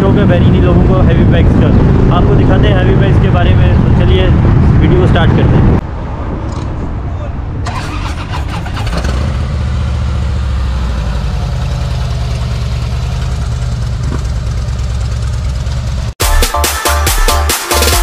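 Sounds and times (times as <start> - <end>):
motorcycle engine idling: 8.8 - 16.1.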